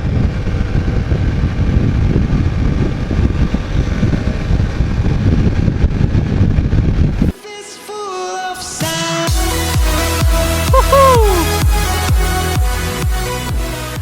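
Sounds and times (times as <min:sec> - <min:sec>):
motorcycle engine running: 0:00.0 - 0:07.1
wind buffeting microphone: 0:00.0 - 0:07.3.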